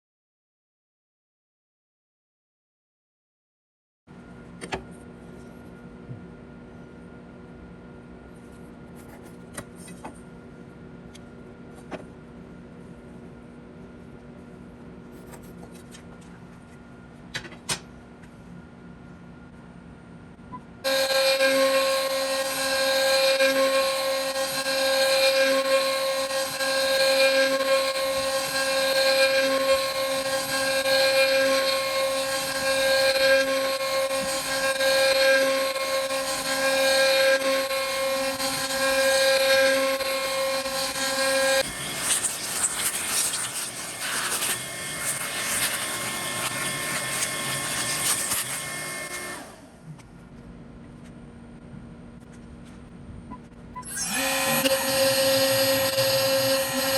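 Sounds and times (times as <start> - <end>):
power saw cutting wood: 20.8 - 49.7, 53.8 - 56.9.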